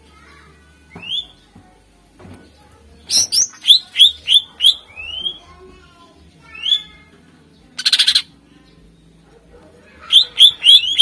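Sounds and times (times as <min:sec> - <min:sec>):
bird singing: 0:03.1 - 0:05.4, 0:07.6 - 0:08.8, 0:10.0 - 0:11.0.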